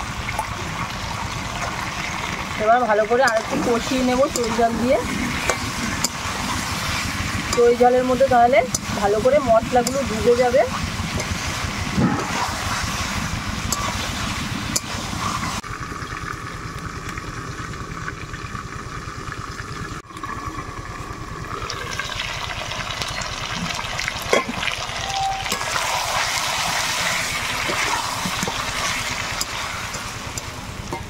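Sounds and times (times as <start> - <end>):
chicken sizzling in pan: 0.7 - 15.6, 21.9 - 31.0.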